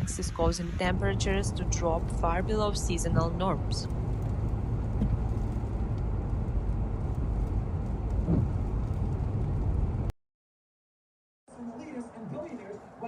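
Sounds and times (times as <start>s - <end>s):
low rumbling storm noise: 0.0s - 10.1s.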